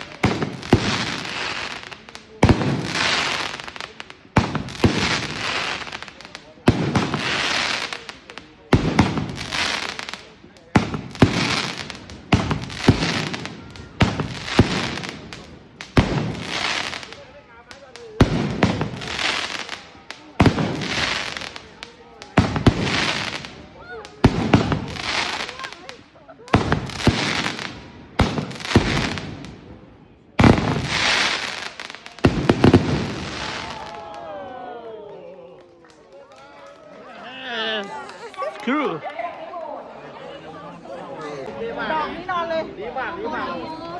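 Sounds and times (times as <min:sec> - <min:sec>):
crackling hiss: 0:00.0 - 0:34.3
firework bangs: 0:00.0 - 0:34.7.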